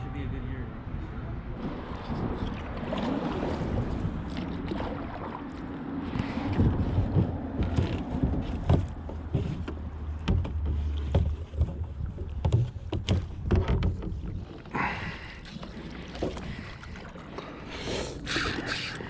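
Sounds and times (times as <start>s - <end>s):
wind rumble on microphone: 0.0s - 15.2s
water lapping against kayak hull: 1.6s - 19.0s
knocks: 7.1s - 14.4s.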